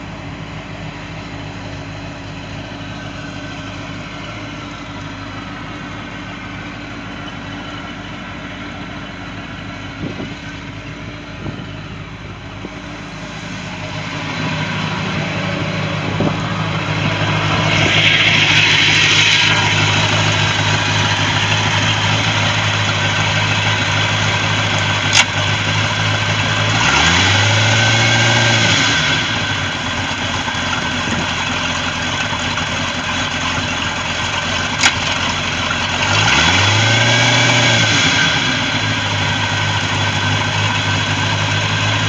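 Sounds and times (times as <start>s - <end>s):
boat engine idling and revving: 0.0s - 42.0s
sharp clicks: 17.7s - 25.9s, 34.6s - 35.5s.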